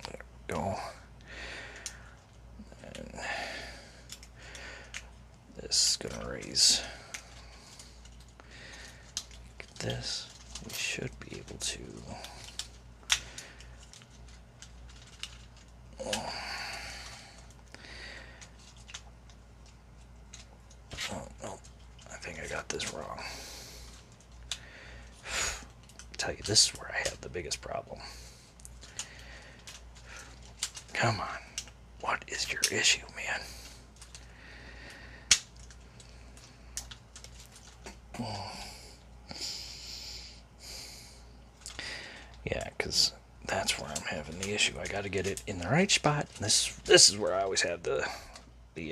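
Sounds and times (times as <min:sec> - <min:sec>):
plastic parts clicking: 0:04.0 - 0:05.2, 0:07.1 - 0:16.3, 0:18.4 - 0:21.0, 0:28.6 - 0:31.8, 0:34.0 - 0:34.3, 0:35.2 - 0:35.8, 0:36.4 - 0:38.0, 0:43.7 - 0:47.5.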